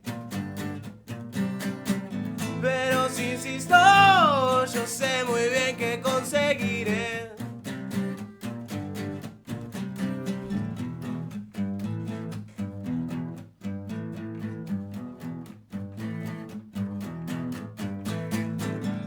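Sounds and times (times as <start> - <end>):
acoustic guitar strumming chords: 0.0 - 14.6.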